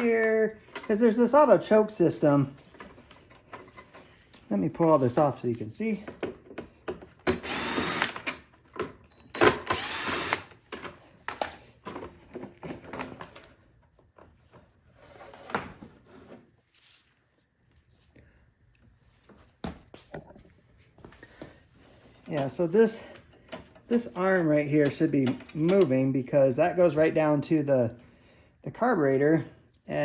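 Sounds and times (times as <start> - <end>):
cordless power driver: 7.2 - 8.4, 9.4 - 10.6.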